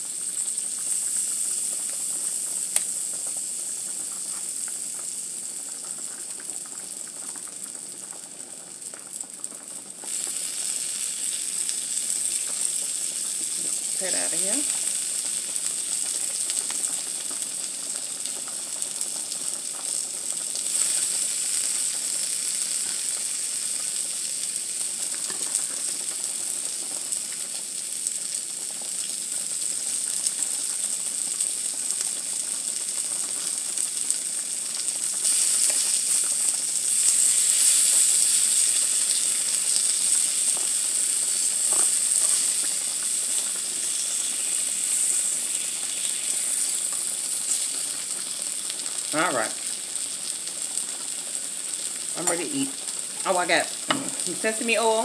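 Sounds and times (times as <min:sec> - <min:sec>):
food sizzling in oil: 0:00.0 - 0:55.0
fork tapping pan: 0:53.9 - 0:54.3.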